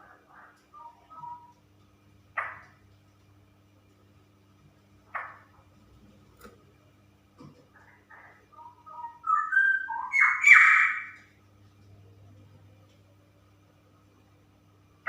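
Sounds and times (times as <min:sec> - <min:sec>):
bird warbling song: 0:00.0 - 0:01.6, 0:07.8 - 0:11.3.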